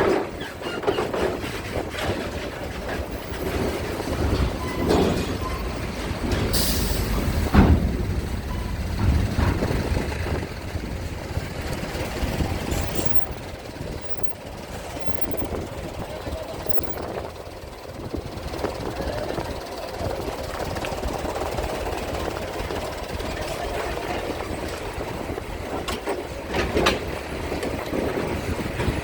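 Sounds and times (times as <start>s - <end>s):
metallic clanks: 0.0s - 15.7s
heavy machinery rumble: 0.0s - 29.0s.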